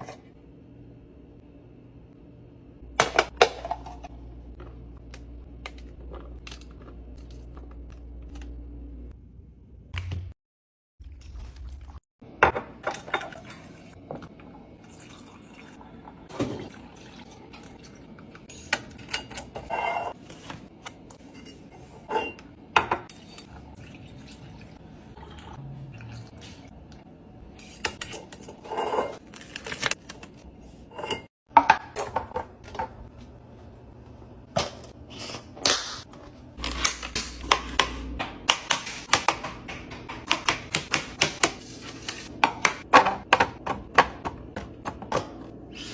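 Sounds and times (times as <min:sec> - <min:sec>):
kitchenware clicking and clinking: 0:03.0 - 0:04.6, 0:12.4 - 0:14.3, 0:18.4 - 0:24.4, 0:27.6 - 0:30.3, 0:30.9 - 0:33.1
liquid pouring: 0:14.8 - 0:18.3, 0:23.8 - 0:26.7.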